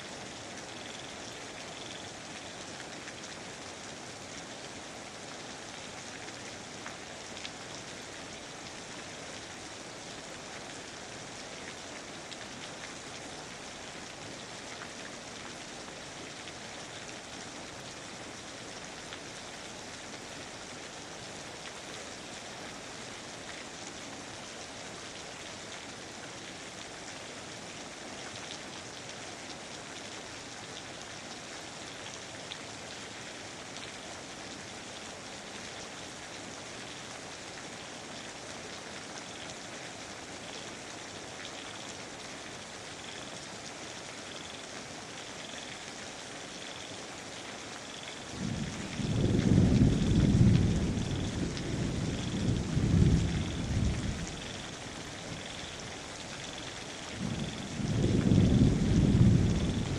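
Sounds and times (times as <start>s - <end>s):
rain falling on foliage: 0.0s - 59.9s.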